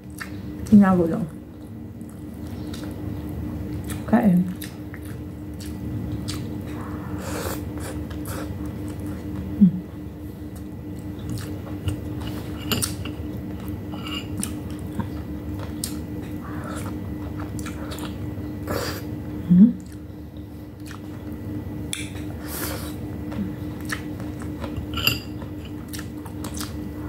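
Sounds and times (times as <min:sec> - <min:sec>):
steady low hum: 0:00.0 - 0:27.0
chewing and biting: 0:01.5 - 0:06.9, 0:10.4 - 0:18.3, 0:19.8 - 0:27.0
person humming: 0:09.6 - 0:09.9, 0:19.5 - 0:19.8.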